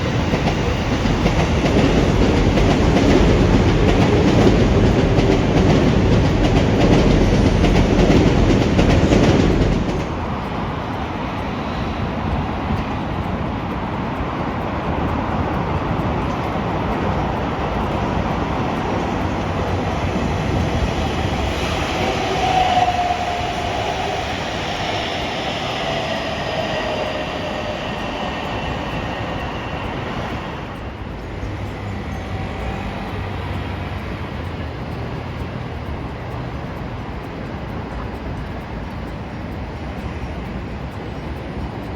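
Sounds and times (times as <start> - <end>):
train rolling on rails: 0.0 - 41.9
high wheel or brake squeal: 20.5 - 34.1.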